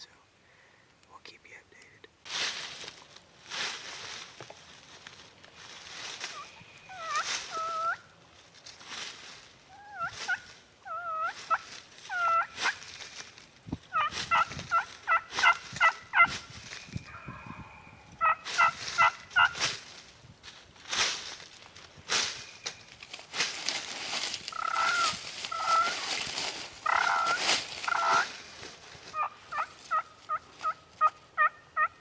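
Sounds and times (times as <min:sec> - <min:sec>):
rustling: 0:01.8 - 0:10.7, 0:11.3 - 0:17.1, 0:18.4 - 0:31.2
turkey gobbling: 0:06.3 - 0:08.1, 0:09.7 - 0:12.8, 0:13.9 - 0:16.4, 0:17.1 - 0:19.6, 0:24.5 - 0:26.2, 0:26.8 - 0:28.4, 0:29.0 - 0:32.0
turkey yelps: 0:06.3 - 0:08.1, 0:09.7 - 0:12.8, 0:13.9 - 0:16.4, 0:17.1 - 0:19.6, 0:24.5 - 0:26.0, 0:26.8 - 0:28.4, 0:29.1 - 0:32.0.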